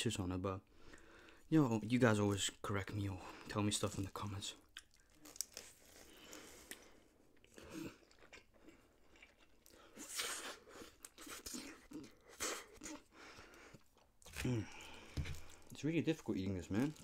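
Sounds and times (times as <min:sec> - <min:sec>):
chewing and slurping noodles: 0:04.8 - 0:15.8.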